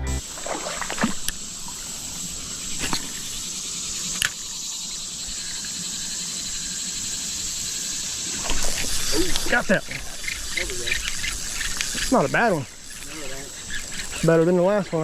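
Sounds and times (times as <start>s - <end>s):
high insect chirring: 0.0s - 15.0s
outdoor background hiss: 0.0s - 15.0s
short sharp clicks or splashes: 0.4s - 1.4s.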